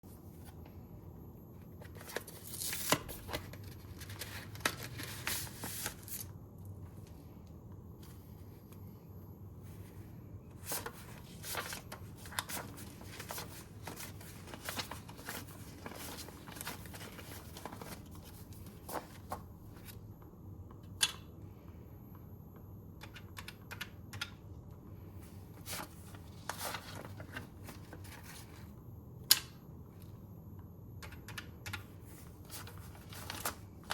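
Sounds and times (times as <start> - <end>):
paper and plastic rustling: 1.8 - 6.3, 10.6 - 20.0, 25.5 - 28.7, 32.0 - 33.9.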